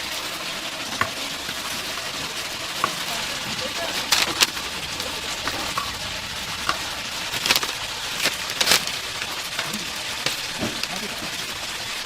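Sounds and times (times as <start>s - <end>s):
chicken sizzling in hot oil: 0.0s - 12.0s
sharp crackles in oil: 0.0s - 12.0s.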